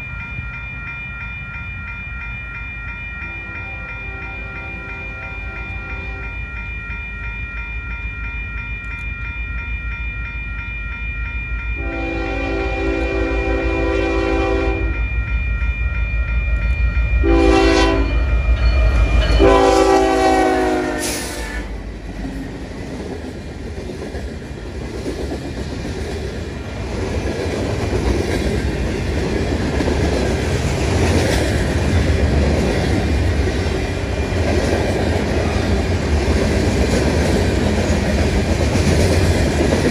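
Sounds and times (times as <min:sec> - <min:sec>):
train low rumble: 0:00.0 - 0:39.9
train chime horn: 0:03.2 - 0:07.0, 0:11.7 - 0:15.3, 0:16.0 - 0:22.0.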